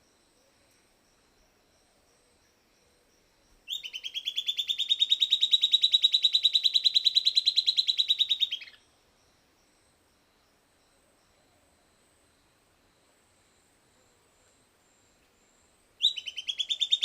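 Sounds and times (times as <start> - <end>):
bird singing rapid trill: 3.7 - 8.9, 16.0 - 17.0.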